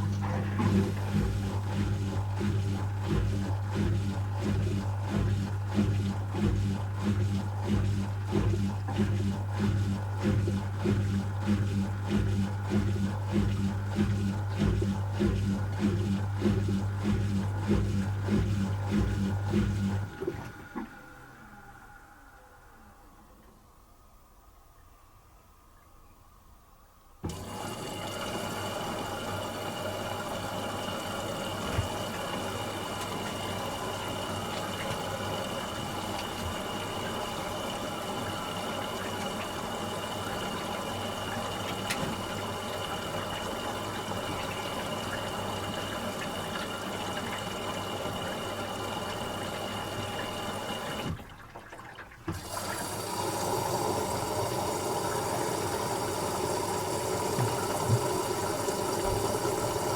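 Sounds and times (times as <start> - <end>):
water running into machine: 0.0 - 22.0, 27.2 - 59.9
washing machine motor running: 0.0 - 22.7, 27.2 - 59.9.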